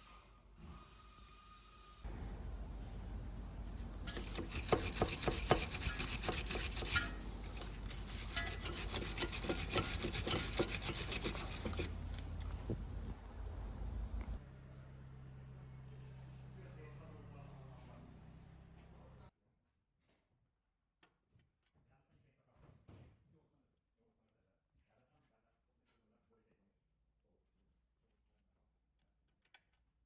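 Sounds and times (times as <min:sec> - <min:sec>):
scraping and rasping: 0:04.0 - 0:14.4.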